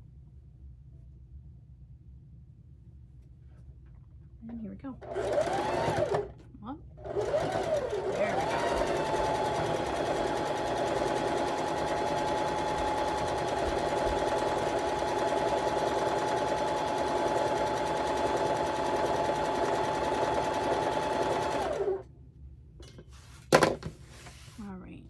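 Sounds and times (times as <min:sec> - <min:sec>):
sewing machine stitching: 0:05.0 - 0:06.4, 0:07.0 - 0:22.0.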